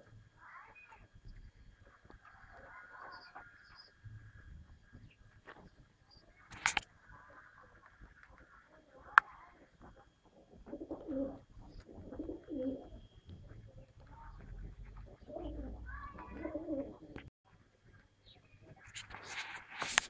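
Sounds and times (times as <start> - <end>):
pigeons cooing: 10.2 - 17.3.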